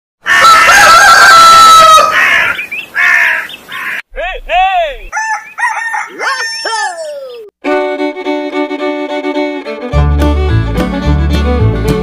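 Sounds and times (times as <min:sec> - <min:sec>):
rooster crowing: 0:00.2 - 0:04.0, 0:05.1 - 0:07.5
music with sliding violin-like notes: 0:07.6 - 0:12.0.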